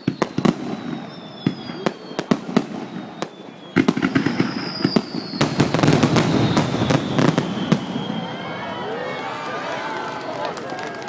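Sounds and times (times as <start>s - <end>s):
fireworks banging: 0.0s - 8.8s
descending firework whistles: 0.0s - 9.8s
fireworks crackling: 0.0s - 11.0s.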